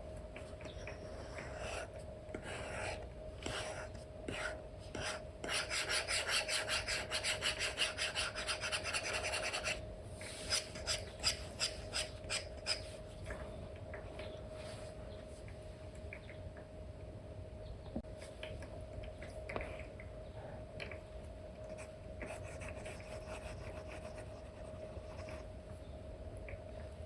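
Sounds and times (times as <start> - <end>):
stylus scratching on screen: 0.7 - 13.0.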